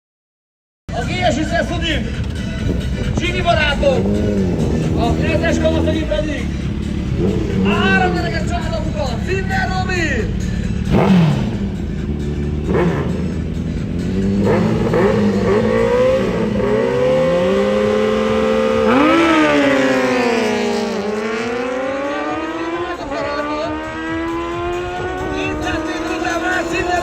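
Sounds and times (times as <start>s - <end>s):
superbikes accelerating: 1.2s - 27.0s.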